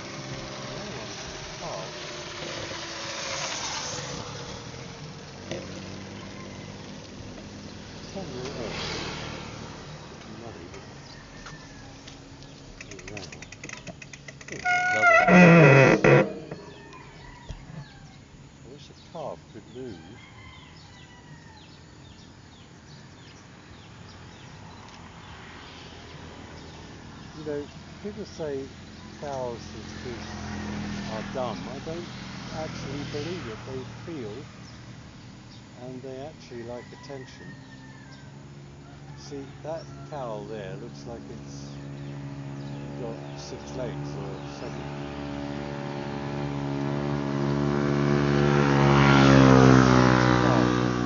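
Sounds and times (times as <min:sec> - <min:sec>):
steady background hiss: 0:00.0 - 0:08.8, 0:16.1 - 0:20.2, 0:26.1 - 0:37.4
motor vehicle engine running: 0:00.0 - 0:19.9, 0:26.6 - 0:36.6, 0:38.1 - 0:51.0
small birds chirping: 0:00.0 - 0:47.7.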